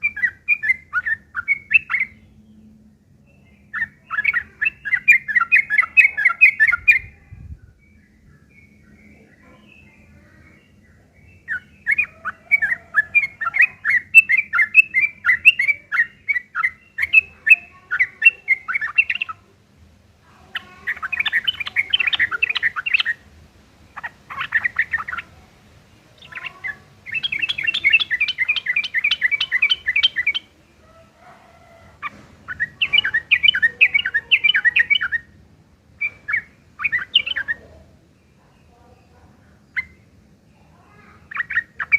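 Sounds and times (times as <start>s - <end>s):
bulbul chattering: 0.0s - 2.7s, 3.4s - 7.8s, 8.4s - 41.9s.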